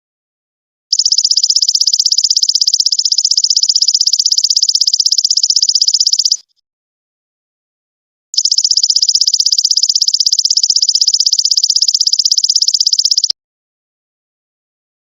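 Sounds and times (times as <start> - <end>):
insect buzzy trill: 0.9 - 6.4, 8.4 - 13.3.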